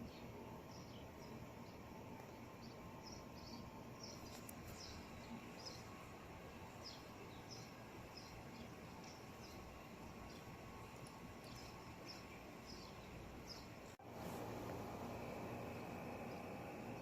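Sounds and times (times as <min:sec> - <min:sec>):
small birds chirping: 0:00.0 - 0:14.0, 0:15.2 - 0:17.0
faint steady hiss: 0:00.0 - 0:17.0.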